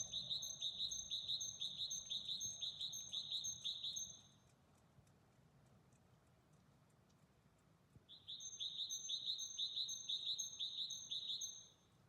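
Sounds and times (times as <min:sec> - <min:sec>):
bird chirping: 0:00.0 - 0:04.4, 0:08.1 - 0:11.9.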